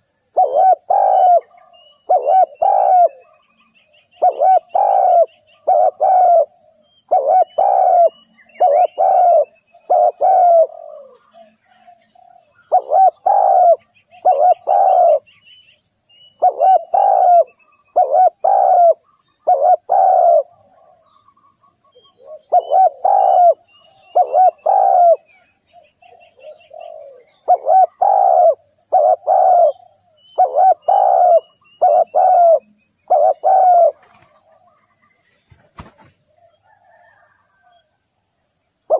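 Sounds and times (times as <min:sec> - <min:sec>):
dove cooing: 0:00.0 - 0:03.6, 0:04.2 - 0:15.3, 0:16.4 - 0:21.2, 0:21.9 - 0:37.9
small birds chirping: 0:00.0 - 0:37.8.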